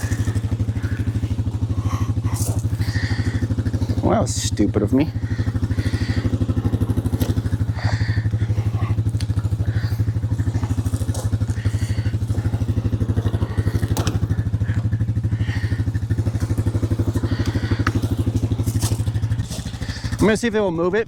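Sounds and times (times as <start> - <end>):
small engine idling: 0.0 - 21.0.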